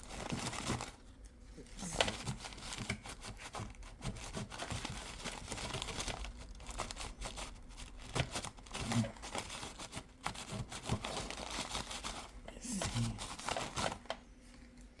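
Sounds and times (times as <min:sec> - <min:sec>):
paper filter crinkling and rubbing: 0:00.0 - 0:14.6.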